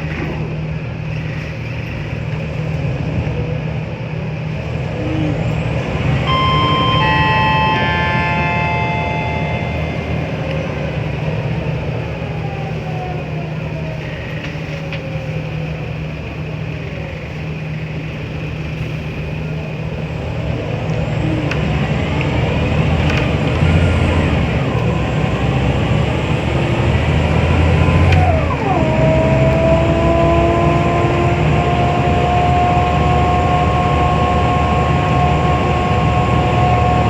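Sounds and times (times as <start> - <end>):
bus diesel engine droning: 3.8 - 37.0
whine falling in pitch: 6.2 - 11.4
cluster of high held tones: 6.2 - 11.7.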